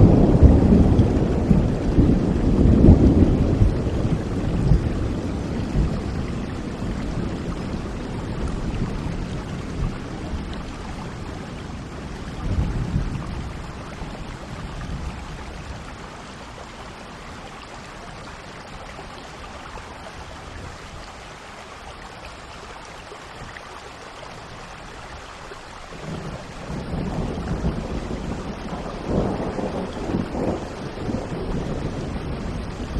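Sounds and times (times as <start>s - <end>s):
low thunder rumbles: 0.0s - 16.8s, 25.9s - 32.9s
rain hissing: 0.0s - 32.9s.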